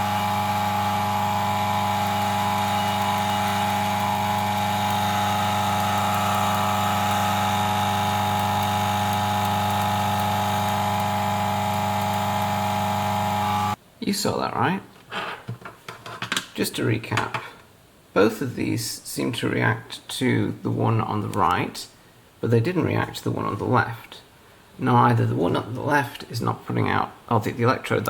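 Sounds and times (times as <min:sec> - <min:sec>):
coffee grinder motor running: 0:00.0 - 0:13.8.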